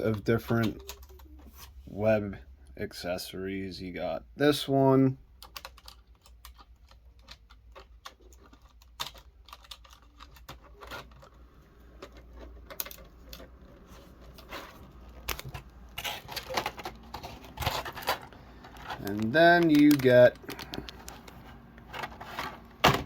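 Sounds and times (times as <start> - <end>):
plastic parts clicking: 5.3 - 23.0.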